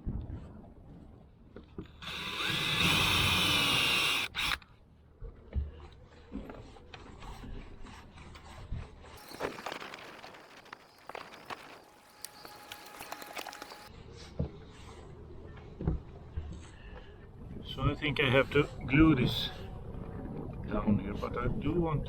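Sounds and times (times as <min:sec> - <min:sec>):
power drill running: 0:02.0 - 0:04.6, 0:09.2 - 0:13.9.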